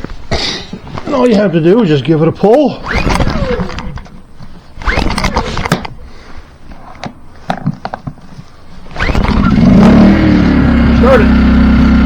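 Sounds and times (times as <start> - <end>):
generator engine pull-started: 2.8 - 4.2, 4.8 - 6.0, 8.9 - 12.0.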